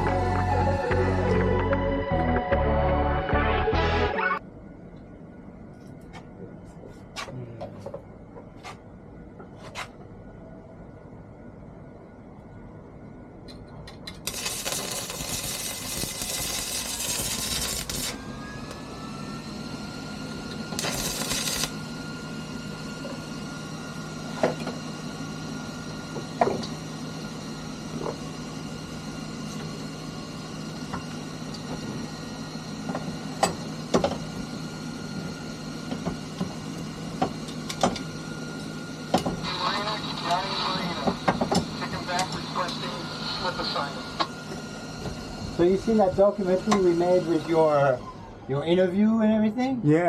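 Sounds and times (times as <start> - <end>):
motor starting and humming: 0.0 - 4.4, 14.2 - 49.8.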